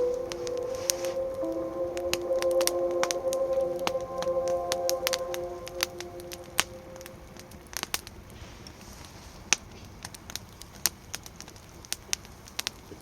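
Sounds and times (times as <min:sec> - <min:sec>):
faint hiss: 0:00.0 - 0:10.0.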